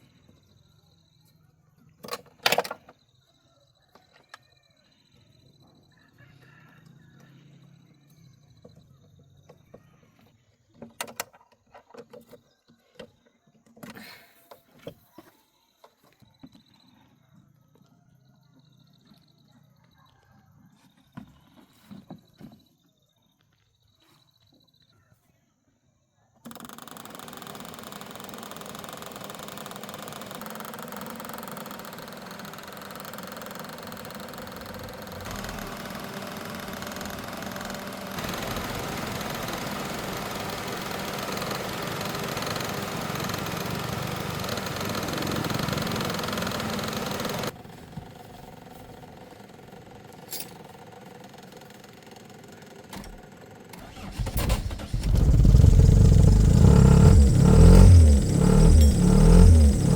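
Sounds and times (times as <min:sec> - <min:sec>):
engine running: 0:27.0 - 0:59.9.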